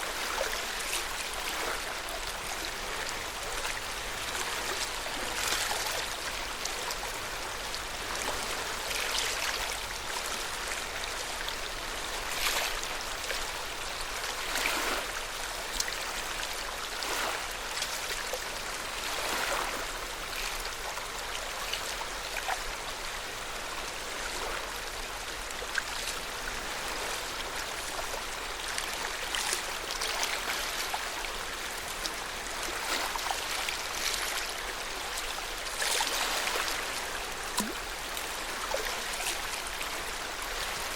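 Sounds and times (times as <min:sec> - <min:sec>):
small water splashes: 0:00.0 - 0:07.1, 0:14.1 - 0:22.6, 0:24.2 - 0:40.9
water lapping at shore: 0:00.0 - 0:40.9.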